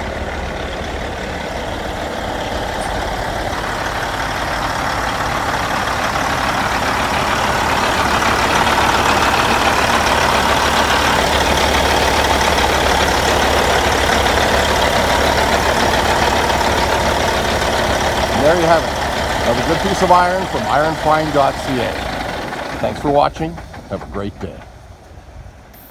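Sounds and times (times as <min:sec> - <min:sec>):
diesel truck engine idling: 0:00.0 - 0:25.9.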